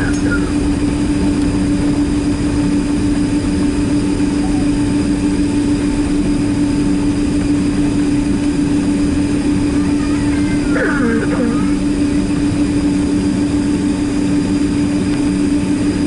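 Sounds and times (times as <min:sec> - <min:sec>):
jet engine cabin drone: 0:00.0 - 0:16.0.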